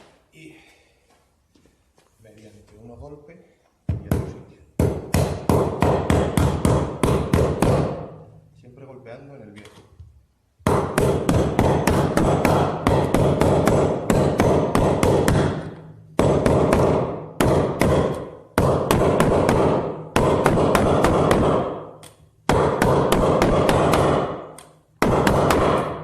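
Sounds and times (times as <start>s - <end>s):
hammer striking metal: 10.6s - 26.0s.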